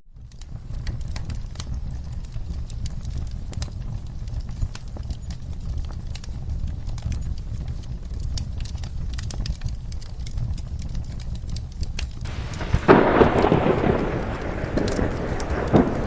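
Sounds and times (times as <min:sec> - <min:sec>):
fire crackling: 0:00.1 - 0:16.0
heavy rain hissing: 0:12.3 - 0:16.0
thunder clap: 0:12.3 - 0:16.0.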